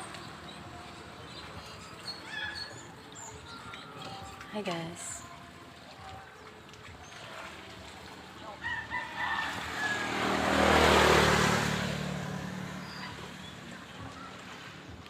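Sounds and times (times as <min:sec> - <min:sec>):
vehicle passing by: 0:07.3 - 0:15.0.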